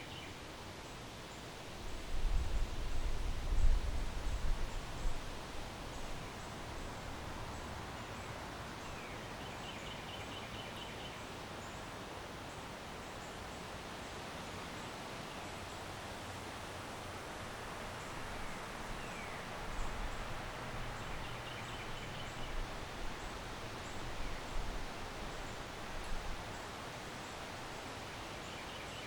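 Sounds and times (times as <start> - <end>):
wind through trees: 0.0 - 29.0
wind gusting over microphone: 1.9 - 6.9.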